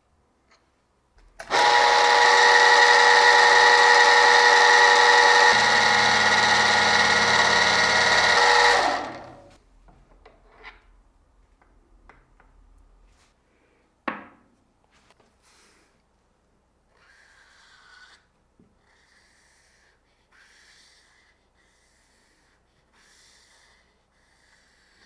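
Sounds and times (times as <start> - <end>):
electric power tool whining: 1.4 - 9.6.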